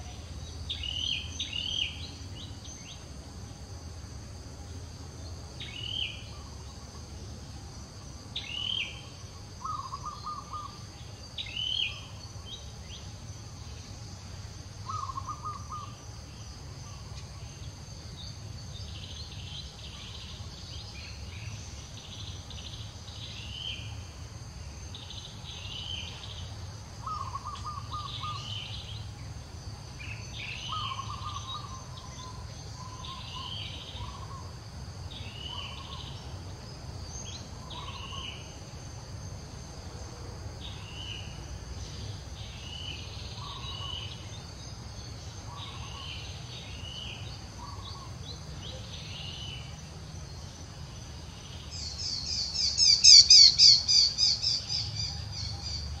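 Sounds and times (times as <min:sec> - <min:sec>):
high insect drone: 0:00.0 - 0:56.0
bird chirping: 0:24.9 - 0:29.1, 0:30.0 - 0:34.5, 0:40.6 - 0:49.9, 0:50.5 - 0:56.0.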